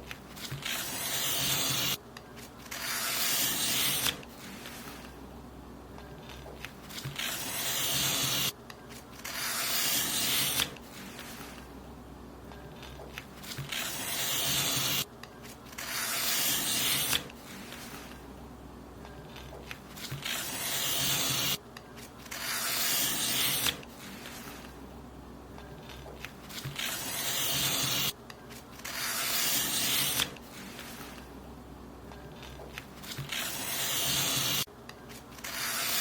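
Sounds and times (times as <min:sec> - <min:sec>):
paper being cut: 0:00.1 - 0:05.1, 0:06.3 - 0:08.6, 0:09.2 - 0:11.6, 0:12.8 - 0:15.1, 0:15.7 - 0:18.2, 0:19.4 - 0:21.6, 0:22.2 - 0:24.7, 0:25.8 - 0:28.2, 0:28.8 - 0:31.2, 0:32.4 - 0:34.7, 0:35.4 - 0:36.0.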